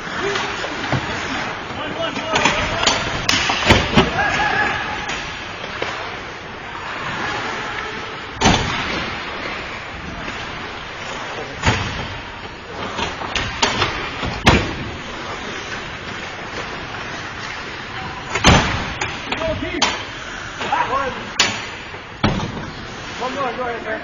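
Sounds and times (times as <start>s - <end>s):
ice rink noise: 0.0s - 24.0s
puck and sticks knocking boards: 0.2s - 6.0s, 12.9s - 14.9s, 18.3s - 22.8s.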